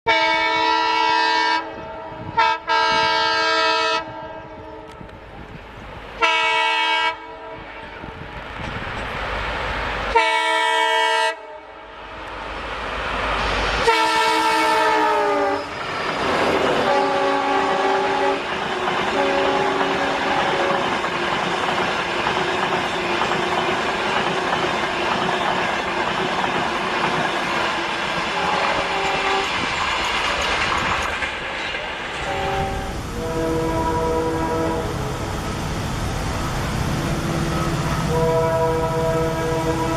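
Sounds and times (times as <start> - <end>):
train horn blasts: 0.1 - 5.1, 6.2 - 8.2, 10.1 - 11.9, 13.8 - 15.7, 16.6 - 20.9, 28.3 - 29.6, 32.2 - 35.4, 36.9 - 39.9
train carriages rushing by: 1.7 - 11.2, 12.0 - 39.9.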